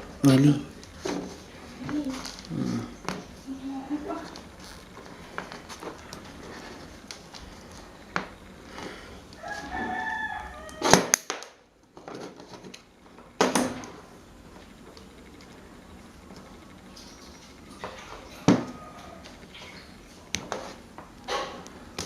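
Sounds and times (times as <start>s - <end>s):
rooster crowing: 9.4s - 11.2s, 17.8s - 19.4s.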